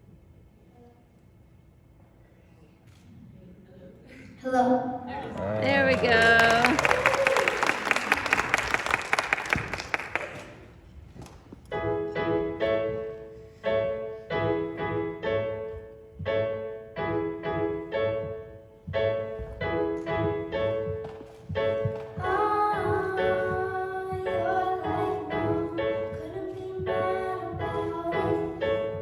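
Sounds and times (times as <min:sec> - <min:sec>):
audience applause: 0:05.3 - 0:10.7
piano playing repeated chords: 0:11.7 - 0:29.0.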